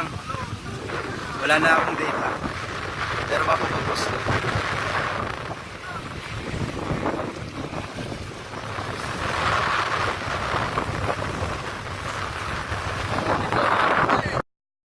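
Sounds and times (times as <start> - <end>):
boat rumble on rough water: 0.0 - 14.4
wind buffeting microphone: 0.0 - 14.4.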